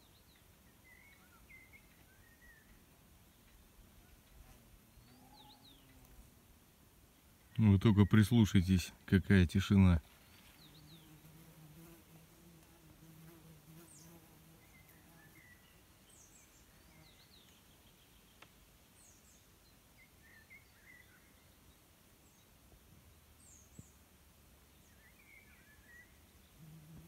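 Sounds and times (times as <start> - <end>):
songbirds chirping and whistling: 0.0 - 6.2, 13.9 - 22.5, 24.7 - 26.6.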